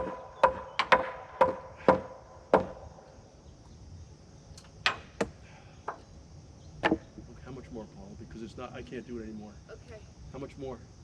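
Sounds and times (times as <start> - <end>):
hammer striking wood: 0.0 - 2.8, 4.8 - 6.0.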